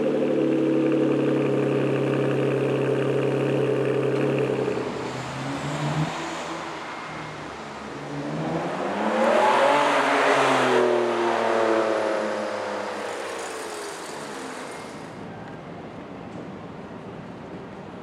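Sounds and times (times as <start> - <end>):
car engine accelerating hard: 8.0 - 15.1.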